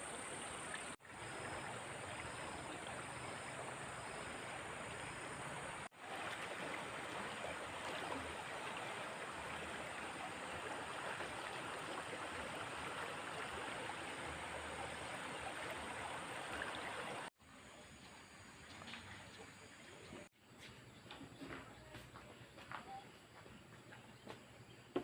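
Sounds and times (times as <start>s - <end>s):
water flowing with steady rush: 0.0s - 17.3s.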